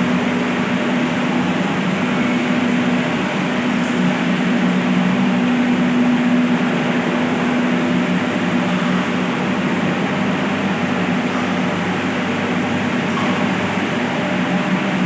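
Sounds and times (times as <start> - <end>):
electric water pumps humming: 0.0 - 15.0.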